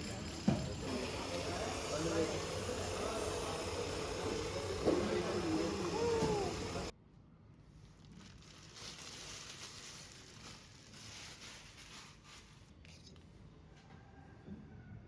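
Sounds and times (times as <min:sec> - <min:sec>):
rustling and scraping fish: 0:08.0 - 0:12.7.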